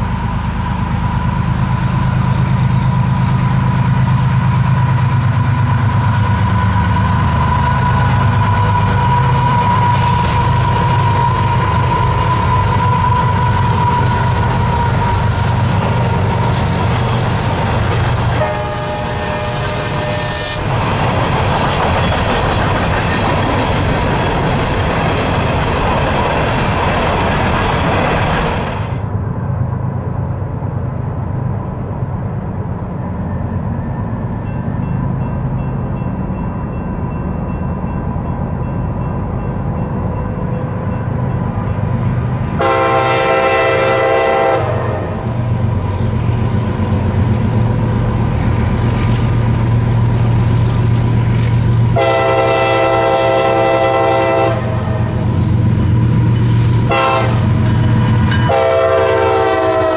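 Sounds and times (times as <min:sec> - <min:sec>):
freight train rolling on rails: 0:00.0 - 0:59.9
train horn: 0:06.0 - 0:17.2, 0:18.3 - 0:20.8, 0:42.6 - 0:45.4, 0:51.9 - 0:55.6, 0:56.6 - 0:59.9.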